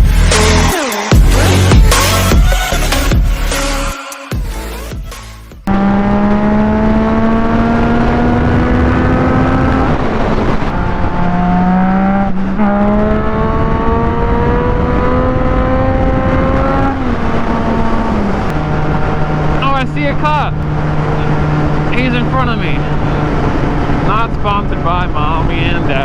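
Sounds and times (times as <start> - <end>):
motorcycle engine accelerating: 5.6 - 26.0.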